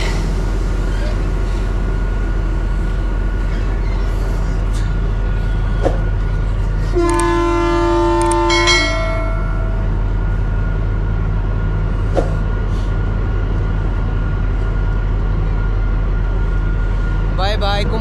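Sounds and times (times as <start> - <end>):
train rumbling: 0.0 - 18.0
train horn chord: 6.9 - 9.9.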